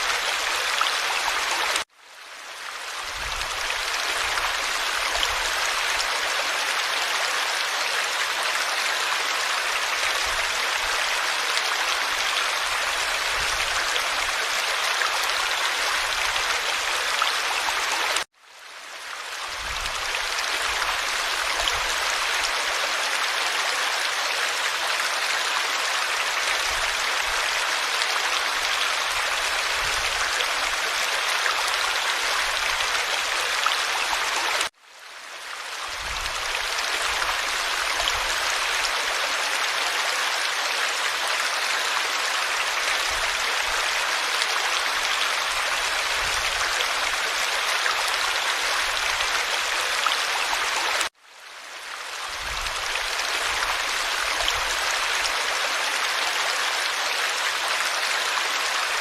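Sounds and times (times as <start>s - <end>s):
stream rushing and babbling: 0.0s - 59.0s.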